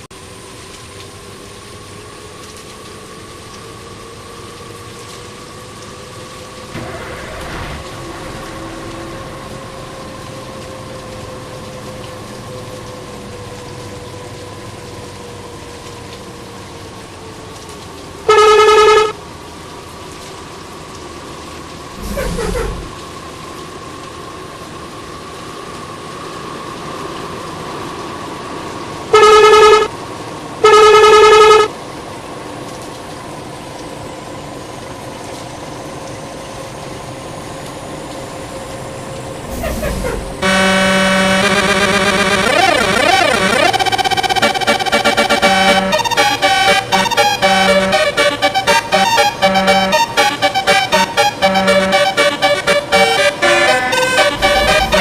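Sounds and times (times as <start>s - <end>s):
running vehicles: 0.0s - 55.0s
bus horn blasts: 18.3s - 19.2s, 29.1s - 29.9s, 30.6s - 31.7s, 39.5s - 55.0s.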